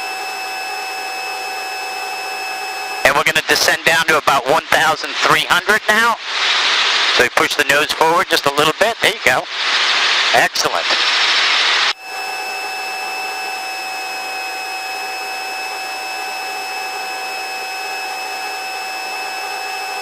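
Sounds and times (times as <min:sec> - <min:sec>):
helicopter cabin whine and hiss: 0:00.0 - 0:20.0
rush of noise: 0:03.0 - 0:12.4.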